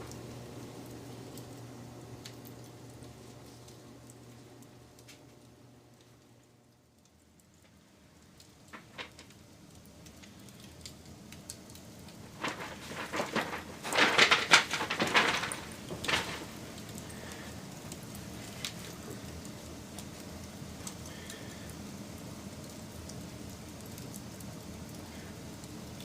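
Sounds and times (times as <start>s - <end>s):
steady hiss: 0.0s - 26.0s
wood fire crackling and popping: 0.0s - 26.0s.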